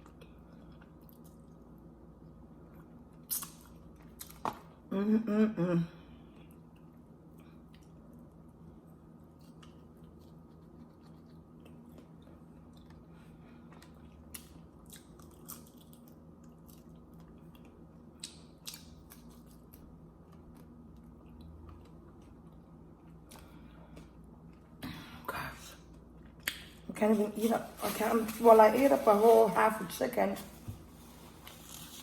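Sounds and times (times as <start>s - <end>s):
faint chewing and mouth sounds: 0.0s - 4.8s, 6.2s - 29.1s, 30.4s - 32.0s
low steady hum: 0.0s - 32.0s.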